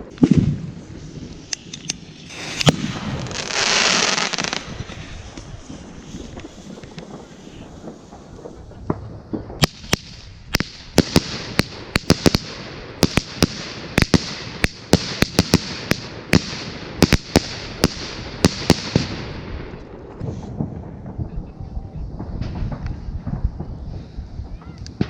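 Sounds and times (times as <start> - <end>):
firework bangs: 0.0 - 1.5, 2.2 - 25.0
firework hiss: 0.0 - 9.0.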